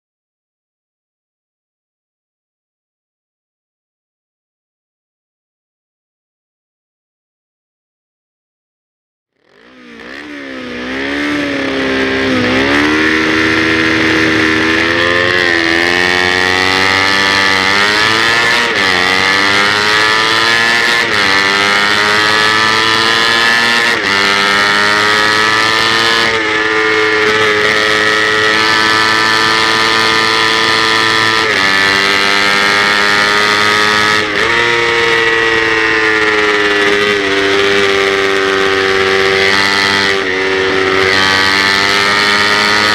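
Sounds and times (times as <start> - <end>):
motorcycle engine accelerating: 9.4 - 42.9.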